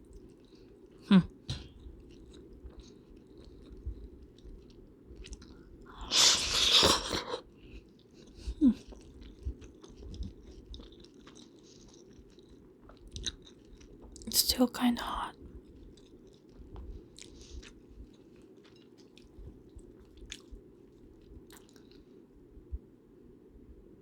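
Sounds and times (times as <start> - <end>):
chewing: 0.0 - 14.4, 15.3 - 22.2
loud slurp of soup: 6.0 - 7.4.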